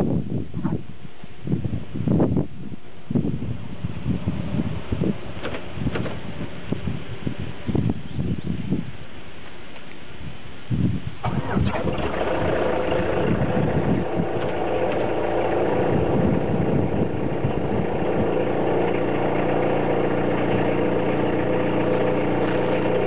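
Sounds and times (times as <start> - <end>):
diesel engine idling: 11.2 - 23.0
diesel engine running unevenly: 11.2 - 23.0.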